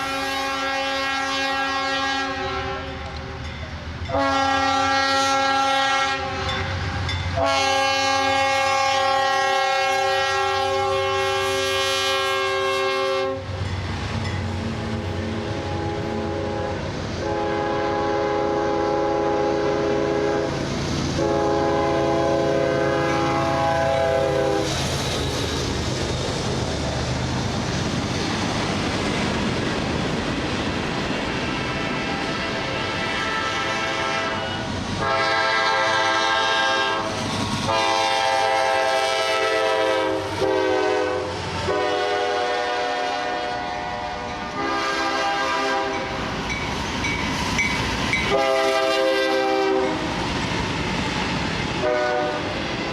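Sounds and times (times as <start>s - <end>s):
train horn blasts: 0.0s - 3.3s, 4.0s - 13.6s, 14.8s - 24.8s, 31.6s - 46.2s, 48.2s - 50.1s, 51.8s - 52.6s
train rumble and rail noise: 0.0s - 52.9s.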